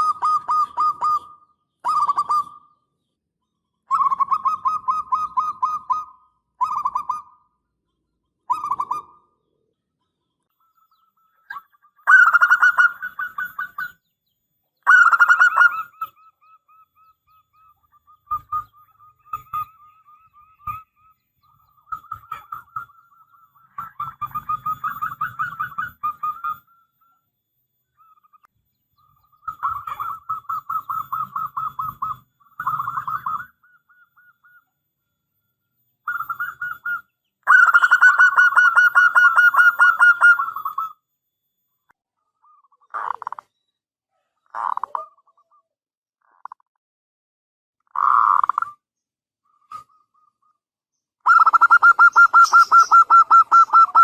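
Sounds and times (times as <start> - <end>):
dove cooing: 0.0 - 2.7, 3.9 - 7.4, 11.4 - 14.0, 14.8 - 26.8, 29.4 - 34.6, 36.1 - 41.0, 51.3 - 54.0.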